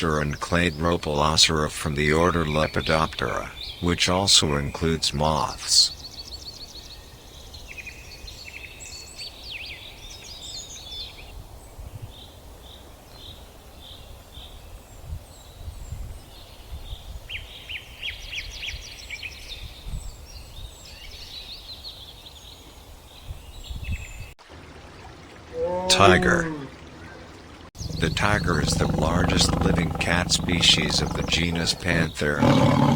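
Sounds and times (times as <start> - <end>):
small birds chirping and trilling: 0.0 - 24.4, 25.1 - 32.9
low outdoor rumble: 24.4 - 32.4.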